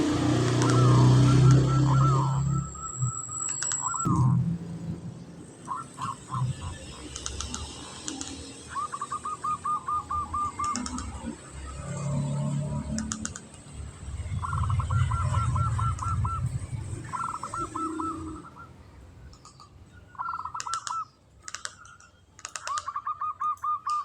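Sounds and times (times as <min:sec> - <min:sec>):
deep low dove calls: 0:00.0 - 0:04.4, 0:14.4 - 0:18.8
dove singing staccato notes: 0:00.0 - 0:04.4, 0:05.6 - 0:24.0
sharp clicks: 0:00.4 - 0:01.6, 0:03.4 - 0:04.3, 0:07.0 - 0:08.7, 0:10.4 - 0:11.4, 0:12.8 - 0:13.8, 0:20.5 - 0:23.0.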